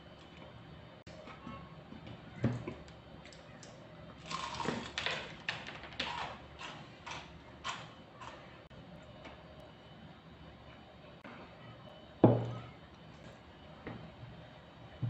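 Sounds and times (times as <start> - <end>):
crispy food crunching while chewing: 3.6 - 8.4.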